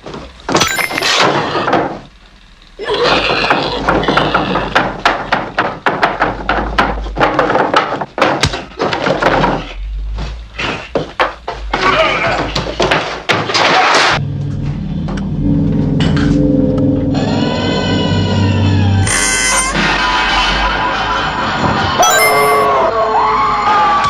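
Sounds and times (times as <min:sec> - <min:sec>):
thuds knocks and slams: 0:03.9 - 0:09.8.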